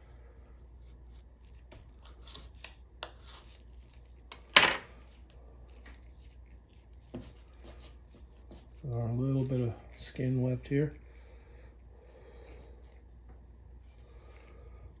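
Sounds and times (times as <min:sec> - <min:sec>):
raw chicken being handled: 0:04.9 - 0:15.0.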